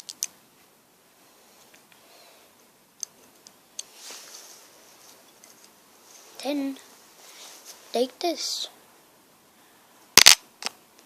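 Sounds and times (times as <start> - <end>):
plastic bricks clicking: 0.0 - 0.3, 10.2 - 10.8.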